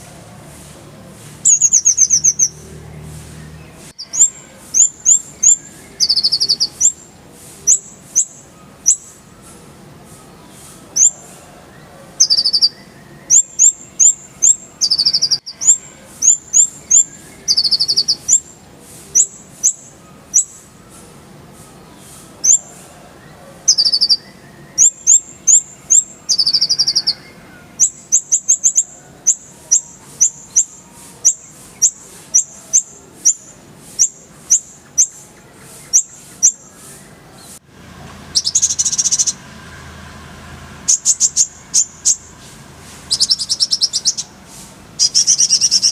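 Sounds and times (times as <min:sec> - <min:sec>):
sunbird chirping and trilling: 0:00.0 - 0:37.6, 0:38.2 - 0:39.5, 0:40.8 - 0:45.9
buzzy bird burst: 0:40.8 - 0:45.9.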